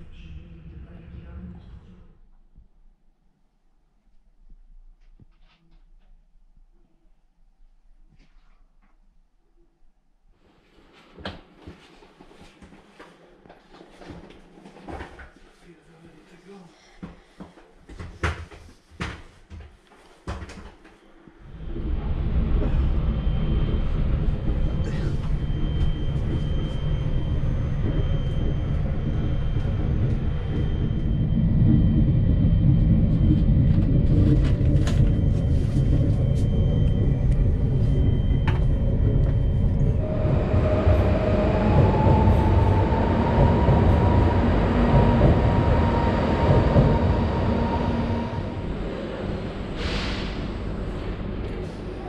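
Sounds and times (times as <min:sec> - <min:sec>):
train rumble: 0:00.0 - 0:02.2, 0:21.4 - 0:52.0
rail noise with electric whine: 0:21.4 - 0:52.0.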